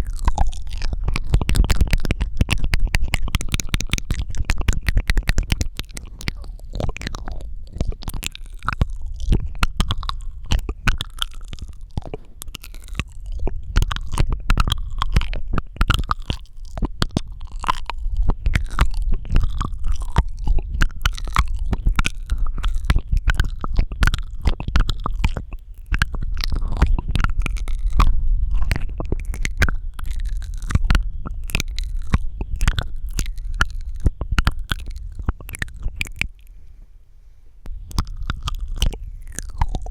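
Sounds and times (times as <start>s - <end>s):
wet mouth clicks and smacks: 0.0s - 36.6s, 37.7s - 39.9s
low rumble: 25.8s - 39.9s.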